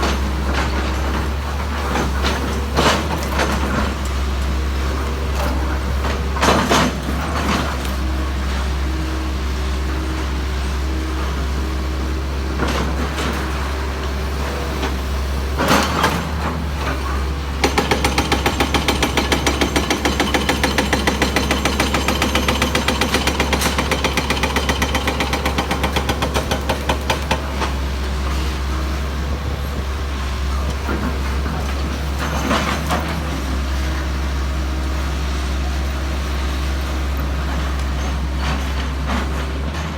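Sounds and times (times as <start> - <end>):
heavy machinery engine drone: 0.0 - 39.9
rapid mechanical hammering: 17.6 - 27.5.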